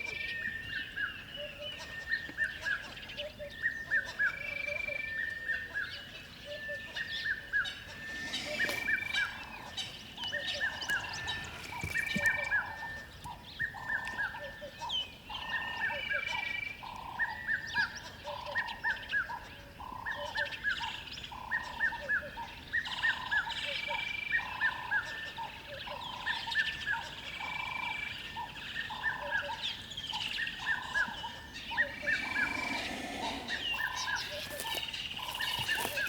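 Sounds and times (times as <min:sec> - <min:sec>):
birds chirping: 0:05.9 - 0:14.2, 0:26.0 - 0:36.0.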